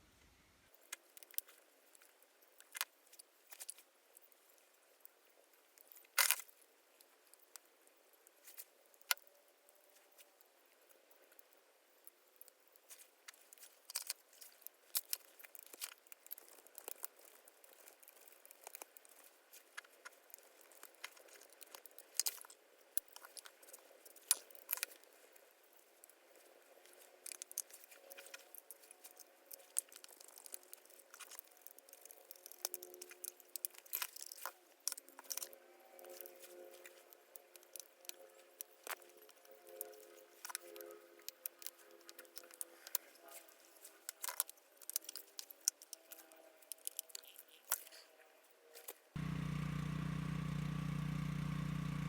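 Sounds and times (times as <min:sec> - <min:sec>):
faint steady tones: 0:49.2 - 0:52.0.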